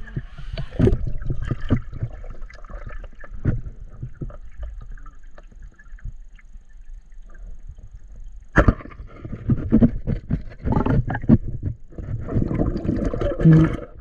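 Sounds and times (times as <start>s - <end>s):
water sloshing and splashing: 0.0s - 6.5s.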